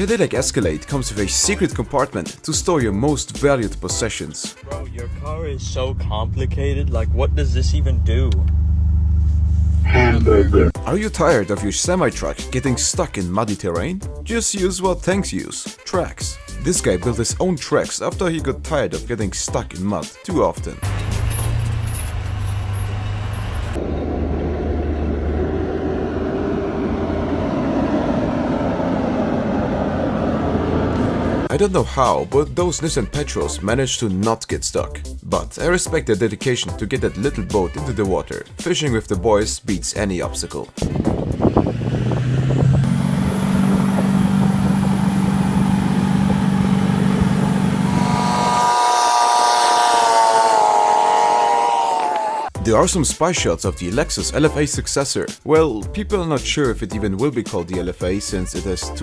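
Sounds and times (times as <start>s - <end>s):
heavy vehicle engine drone: 5.0s - 10.8s, 20.8s - 31.5s, 41.6s - 48.9s.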